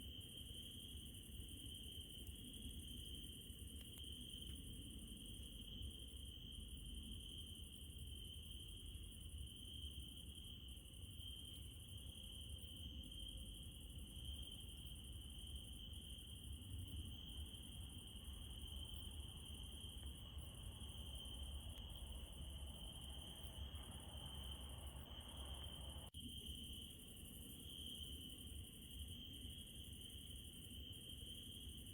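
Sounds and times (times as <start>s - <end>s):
crickets trilling: 0.0s - 31.9s.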